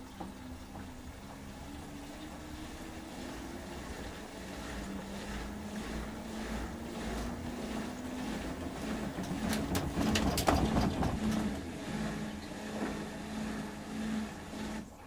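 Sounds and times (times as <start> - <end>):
washing machine spinning: 0.0 - 15.0
clicks and knocks: 9.0 - 11.6.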